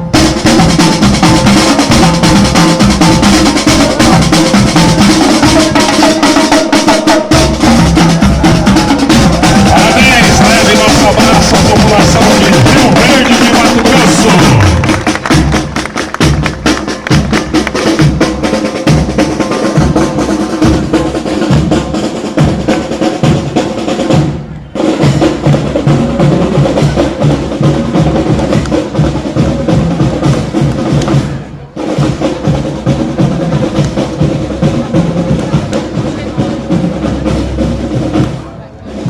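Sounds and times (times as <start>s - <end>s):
bass drum beats: 0.0s - 6.4s, 7.2s - 24.4s
snare drum strokes: 0.0s - 20.8s
marching band playing: 0.0s - 39.0s.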